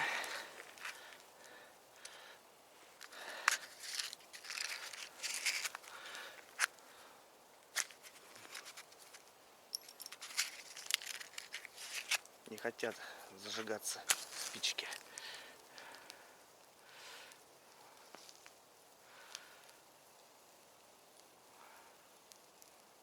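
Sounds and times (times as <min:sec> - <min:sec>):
matches scratching against box: 0:03.6 - 0:05.9, 0:10.2 - 0:12.2.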